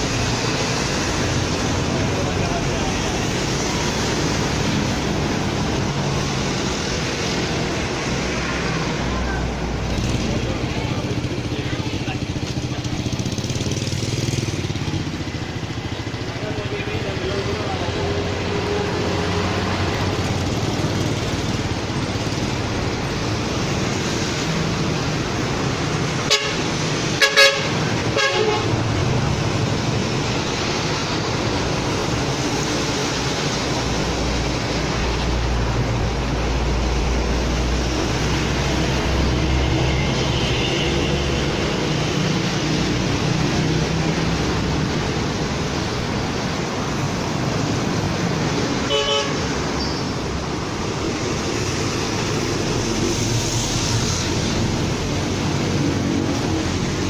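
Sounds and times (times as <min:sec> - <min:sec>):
road traffic: 0:00.0 - 0:57.0
vehicle horn tooting: 0:26.3 - 0:28.8, 0:48.9 - 0:49.4.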